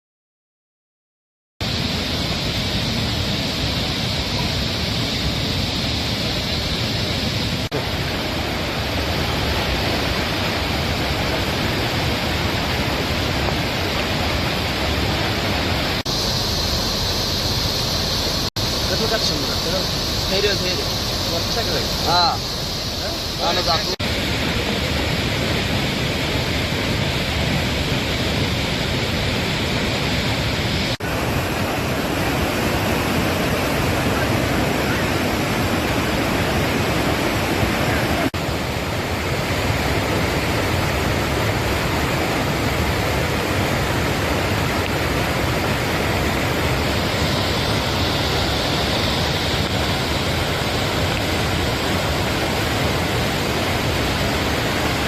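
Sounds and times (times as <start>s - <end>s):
floodwater rushing: 1.6s - 55.0s.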